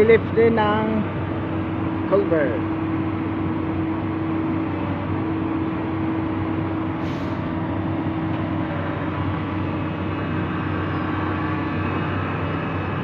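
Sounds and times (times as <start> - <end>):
excavator diesel engine: 0.0 - 13.0
hydraulics whining: 0.0 - 13.0
brief hiss: 7.0 - 7.5.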